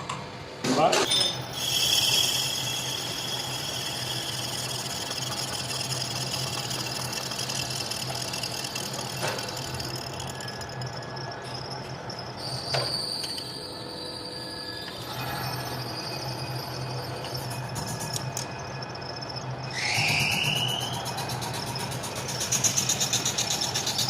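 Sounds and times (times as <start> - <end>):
high thin whine: 1.1 - 24.0
machine tool humming: 1.4 - 12.4.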